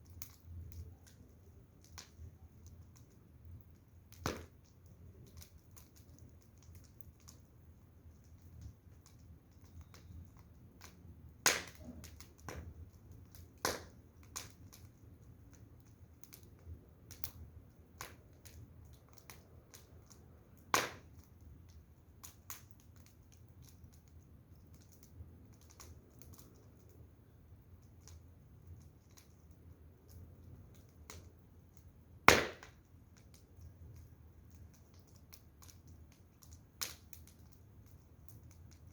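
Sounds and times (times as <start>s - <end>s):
firewood crackling and popping: 0.0s - 38.9s
loud wood snaps: 11.4s - 11.9s, 32.3s - 32.8s.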